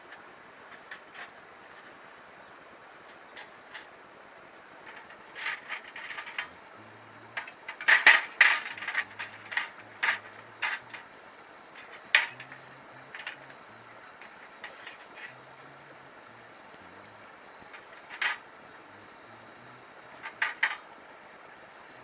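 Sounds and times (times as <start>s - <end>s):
metal parts clicking and clinking: 4.9s - 11.0s, 11.8s - 13.6s, 14.2s - 15.3s, 17.7s - 18.4s, 20.2s - 20.8s.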